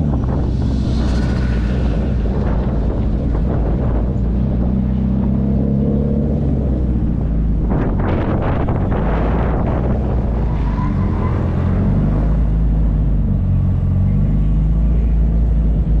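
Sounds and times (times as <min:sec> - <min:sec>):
car engine running: 0:00.0 - 0:10.4
low road rumble: 0:00.0 - 0:16.0.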